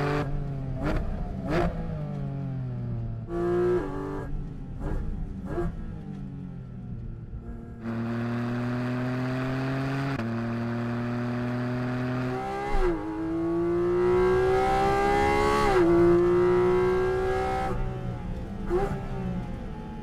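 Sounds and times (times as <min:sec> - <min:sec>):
car engine accelerating hard: 0:07.8 - 0:20.0.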